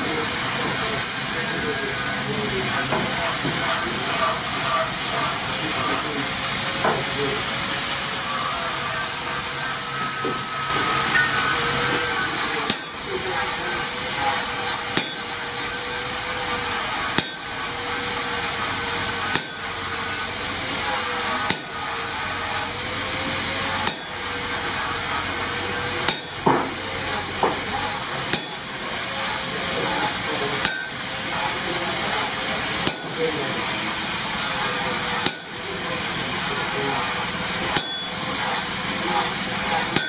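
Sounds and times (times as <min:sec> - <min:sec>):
hammer striking metal on anvil: 0:06.8 - 0:07.1, 0:09.4 - 0:18.5, 0:19.1 - 0:20.3, 0:20.9 - 0:22.6, 0:23.7 - 0:29.4, 0:30.0 - 0:31.5, 0:32.2 - 0:33.4, 0:34.2 - 0:36.1, 0:37.1 - 0:38.7, 0:39.6 - 0:40.0.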